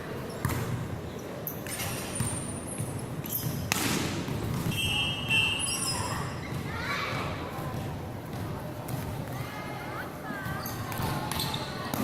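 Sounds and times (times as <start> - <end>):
sneaker squeaks: 0.2 - 3.8, 4.5 - 7.2, 10.4 - 12.0.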